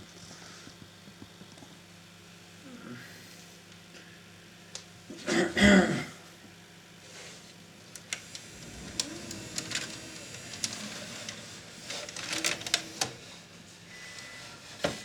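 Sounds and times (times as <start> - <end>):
mechanical clicks and clatter: 8.0 - 13.2
faint whir: 8.0 - 15.0.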